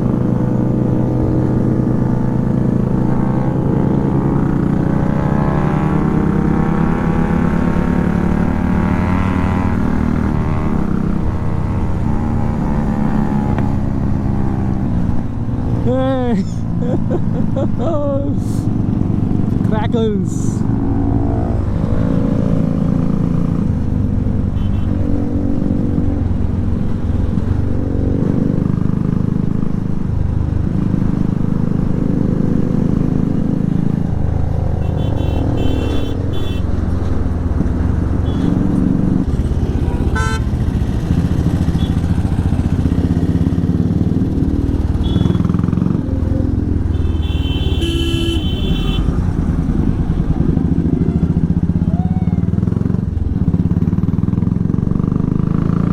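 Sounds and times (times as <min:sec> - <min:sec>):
motorcycle engine accelerating: 0:00.0 - 0:55.9
vehicle horn honking: 0:24.6 - 0:24.9, 0:34.8 - 0:36.7, 0:38.2 - 0:38.6, 0:39.6 - 0:40.8, 0:45.0 - 0:45.6, 0:46.9 - 0:49.2.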